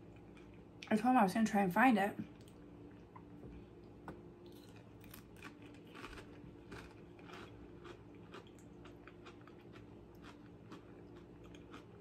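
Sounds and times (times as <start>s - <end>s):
chip crunching: 4.4s - 12.0s.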